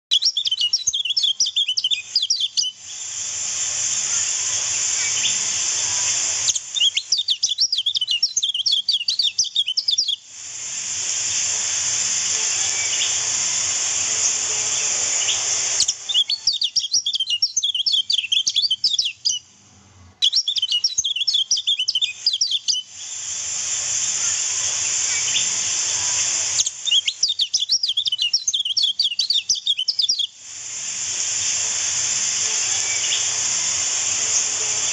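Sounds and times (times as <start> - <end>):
bird chirps and trills: 0.1 - 2.8, 3.9 - 10.2, 12.6 - 13.3, 14.0 - 19.4, 20.2 - 22.9, 24.8 - 30.3, 32.6 - 34.9
steady rushing hiss: 0.7 - 34.9.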